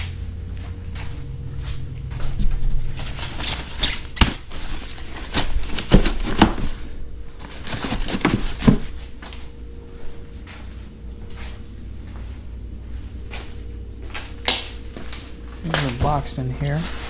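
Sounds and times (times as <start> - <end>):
packing material rustling and scraping: 0.0 - 9.4, 14.7 - 17.0.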